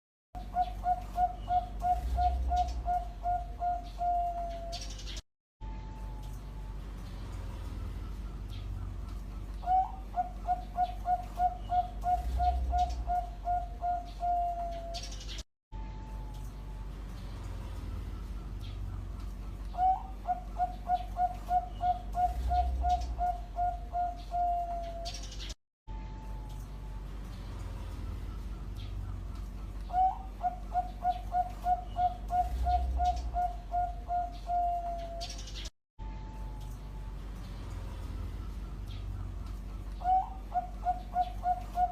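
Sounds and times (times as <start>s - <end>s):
dove cooing: 0.4s - 5.1s, 9.6s - 15.4s, 19.7s - 25.4s, 28.2s - 35.6s, 40.0s - 41.9s.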